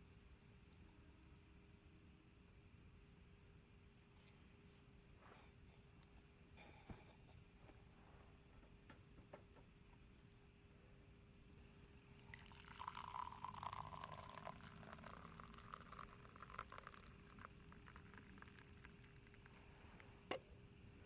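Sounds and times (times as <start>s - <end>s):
liquid pouring: 12.2s - 19.6s.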